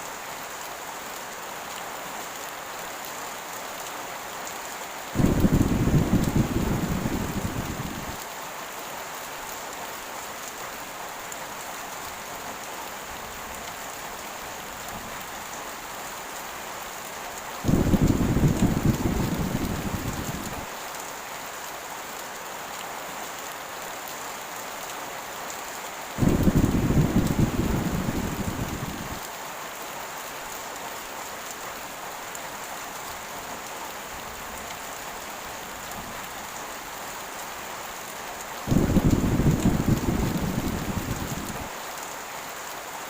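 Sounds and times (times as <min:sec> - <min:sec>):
heavy rain falling: 0:00.0 - 0:43.0
thunder rumbling: 0:05.2 - 0:08.2, 0:17.6 - 0:20.7, 0:26.2 - 0:29.2, 0:38.7 - 0:41.7.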